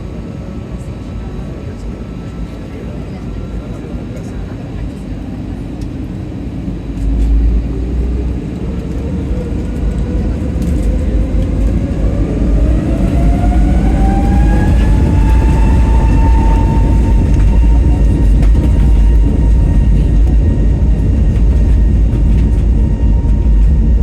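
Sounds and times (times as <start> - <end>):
jet engines spooling up: 6.0 - 24.0.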